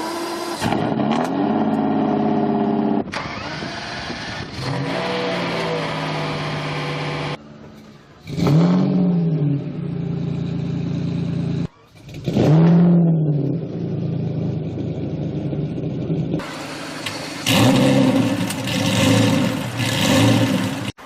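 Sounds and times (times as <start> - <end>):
sports car engine revving: 8.2 - 21.0.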